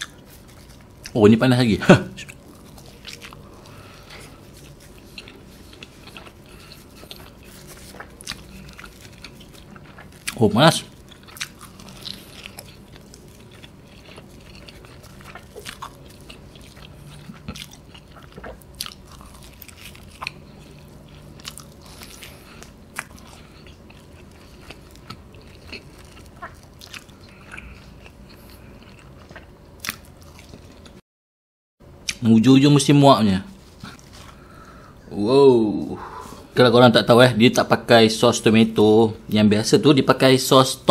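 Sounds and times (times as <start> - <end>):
person chewing food: 0.0 - 1.2, 2.1 - 31.0, 33.6 - 35.0.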